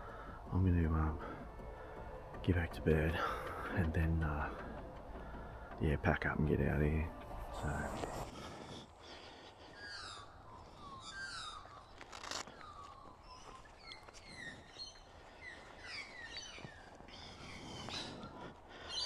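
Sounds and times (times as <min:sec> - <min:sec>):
birds chirping: 0:00.0 - 0:19.0
rustling: 0:11.9 - 0:12.6.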